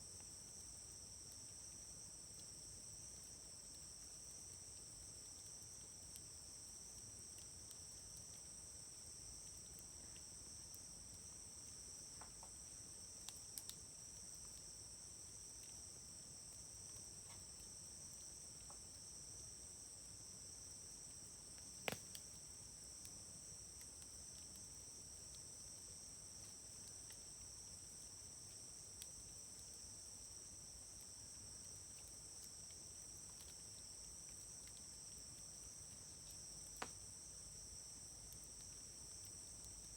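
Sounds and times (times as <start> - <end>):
insects chirring: 19.8 - 29.0
wood fire crackling: 21.8 - 22.2.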